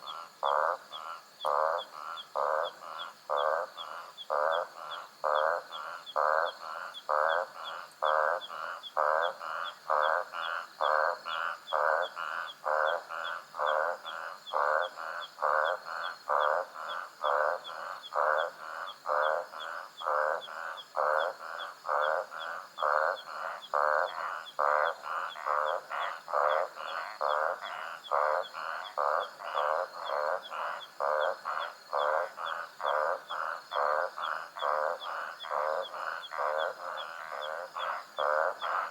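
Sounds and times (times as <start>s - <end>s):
night animal calling: 0.0s - 38.9s.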